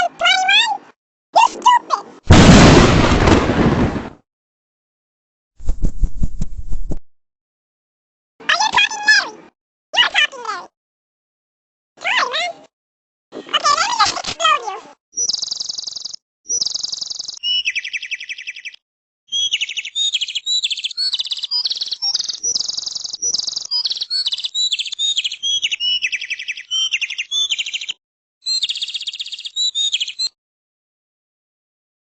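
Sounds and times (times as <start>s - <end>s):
birds buzzy rattling chirps: 15.2s - 18.6s, 19.3s - 27.9s, 28.5s - 30.2s.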